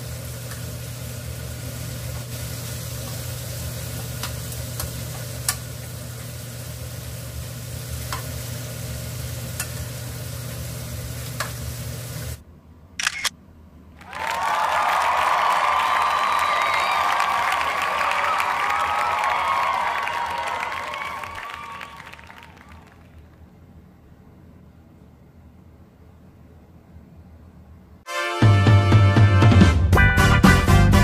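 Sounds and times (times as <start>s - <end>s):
food sizzling in a frying pan: 0.0s - 12.4s.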